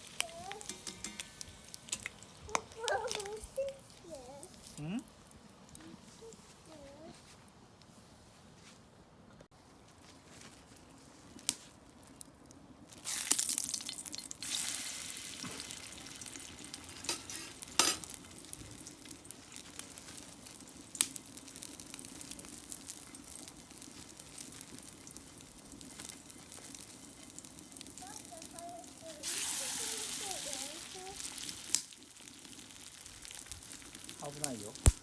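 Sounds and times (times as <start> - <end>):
food sizzling in a pan: 0.0 - 5.0, 12.9 - 35.0.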